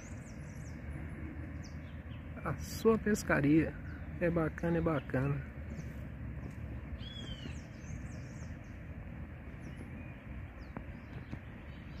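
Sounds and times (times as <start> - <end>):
birds chirping: 0.0 - 12.0
low outdoor rumble: 0.0 - 12.0.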